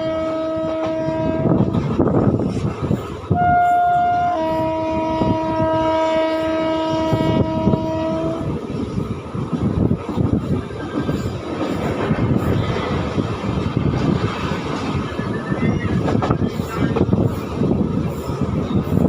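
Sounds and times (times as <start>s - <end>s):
locomotive horn blasts: 0.0s - 1.8s, 3.3s - 8.5s
train wheels rumbling on rails: 0.0s - 19.0s.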